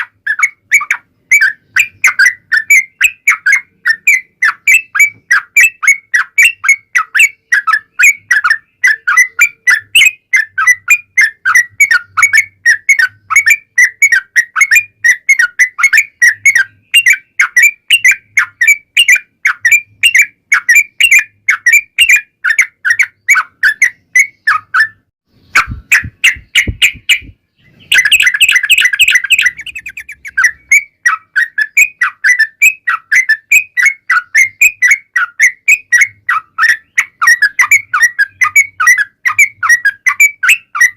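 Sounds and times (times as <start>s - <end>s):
bird rapid chirping song: 0.0s - 40.9s
low thumps: 25.5s - 27.9s.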